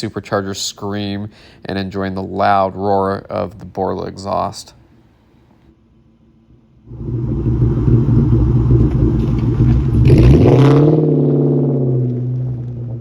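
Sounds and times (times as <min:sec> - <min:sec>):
supercharger whine: 0:05.8 - 0:13.0
car engine accelerating hard: 0:06.9 - 0:13.0.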